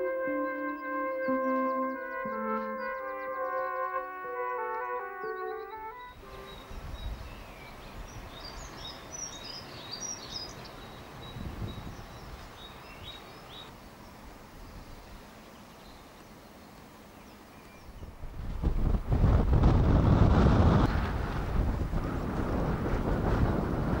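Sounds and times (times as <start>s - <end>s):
small birds chirping: 0.6s - 18.2s.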